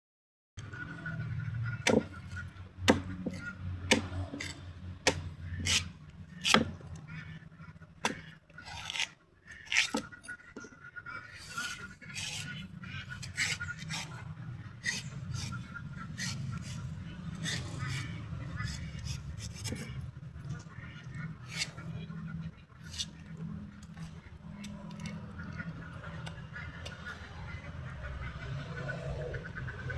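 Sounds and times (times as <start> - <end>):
blade chopping coconut husk: 1.8 - 6.8
scraping and rubbing strokes: 8.6 - 25.2.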